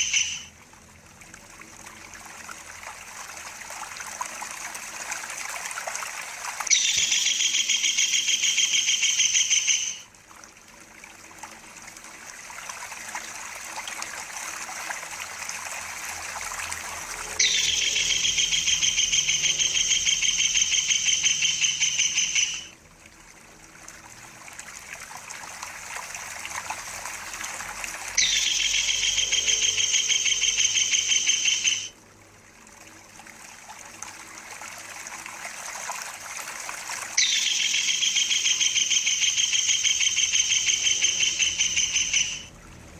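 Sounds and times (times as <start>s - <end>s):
kingfisher trilling: 0.0s - 0.5s, 6.6s - 10.1s, 17.1s - 22.7s, 28.2s - 32.0s, 37.2s - 42.5s
running water rushing: 0.0s - 42.9s.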